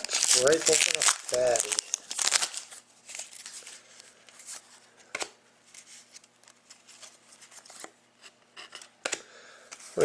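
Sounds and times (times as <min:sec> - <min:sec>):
wrapper rustling: 0:00.0 - 0:04.8.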